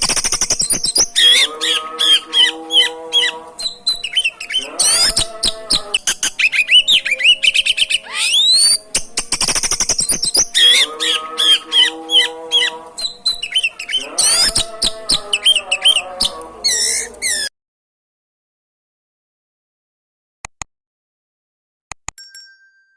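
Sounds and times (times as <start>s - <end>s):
songbird singing: 0.0s - 17.5s.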